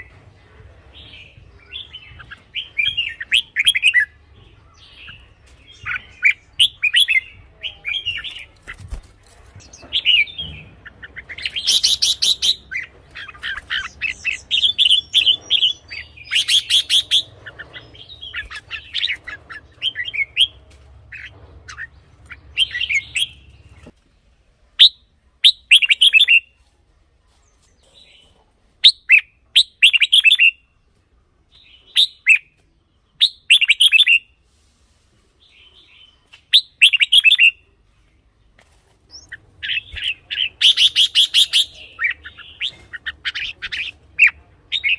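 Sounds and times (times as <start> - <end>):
bulbul singing whistled phrases: 9.7 - 20.5, 36.3 - 37.6, 39.1 - 44.9.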